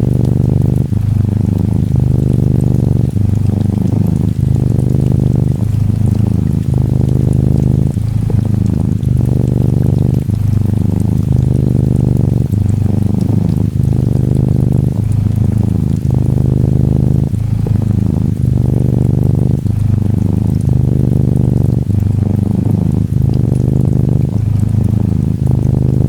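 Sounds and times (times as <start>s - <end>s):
cat purring: 0.0s - 26.0s
gentle rain pattering: 0.0s - 26.0s.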